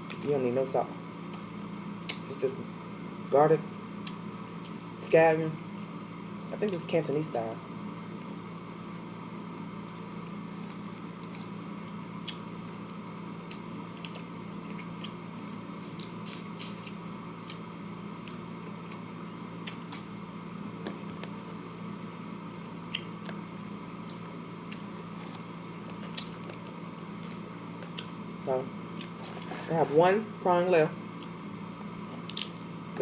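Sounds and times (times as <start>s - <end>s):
room hum: 0.0s - 33.0s
person chewing food: 12.2s - 20.2s, 20.8s - 28.2s, 28.9s - 29.6s, 31.1s - 32.8s.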